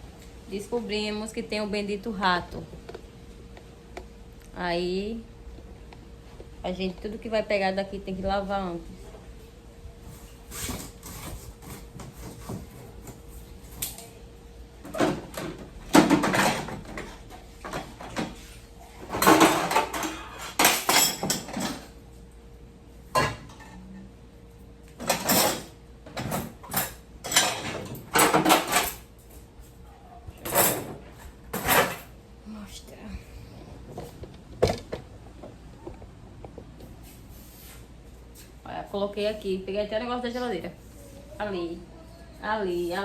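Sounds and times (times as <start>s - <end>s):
plates cups and cutlery clattering: 19.0s - 22.0s, 25.0s - 29.1s.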